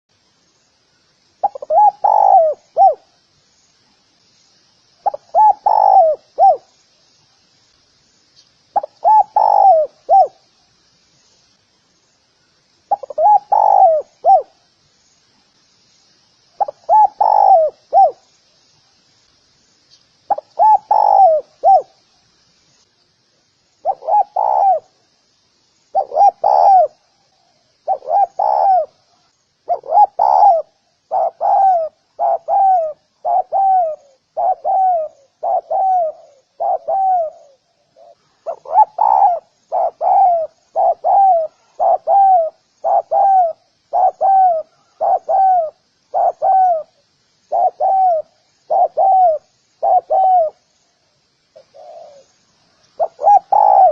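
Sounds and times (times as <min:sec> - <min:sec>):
faint high chirping: 0:00.1 - 0:53.9
dove cooing: 0:01.4 - 0:03.1, 0:05.0 - 0:06.7, 0:08.7 - 0:10.4, 0:12.9 - 0:14.6, 0:16.6 - 0:18.2, 0:20.3 - 0:22.0, 0:23.8 - 0:25.0, 0:25.9 - 0:27.1, 0:27.8 - 0:29.1, 0:29.7 - 0:50.6, 0:51.6 - 0:52.4, 0:53.0 - 0:53.9.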